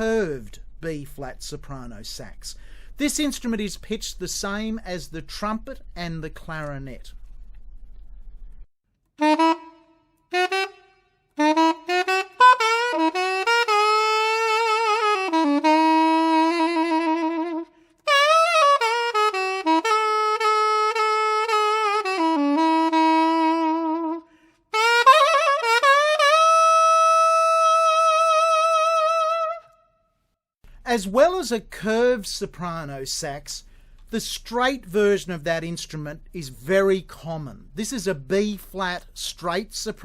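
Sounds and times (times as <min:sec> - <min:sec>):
soprano saxophone melody: 0:09.2 - 0:29.8.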